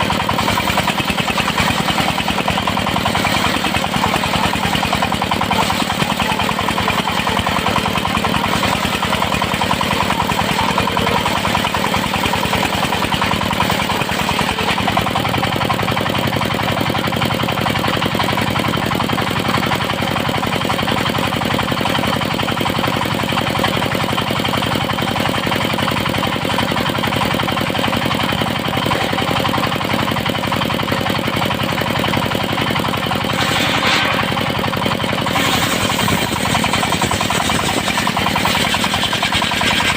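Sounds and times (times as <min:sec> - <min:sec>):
circular saw running: 0:00.0 - 0:39.9.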